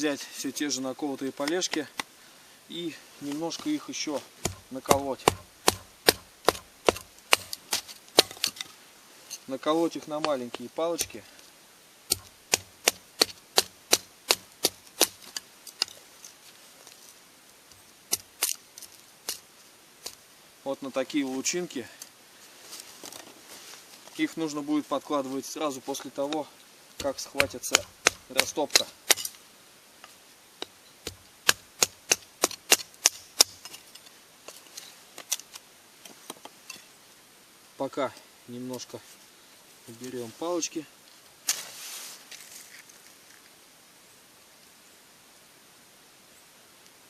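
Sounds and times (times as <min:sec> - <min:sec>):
chopping wood strikes: 0:04.4 - 0:08.6, 0:12.1 - 0:15.4, 0:27.0 - 0:29.3
knife splitting wood cracks: 0:04.4 - 0:08.7, 0:12.1 - 0:16.0, 0:18.1 - 0:19.4, 0:27.0 - 0:29.4, 0:31.1 - 0:34.6.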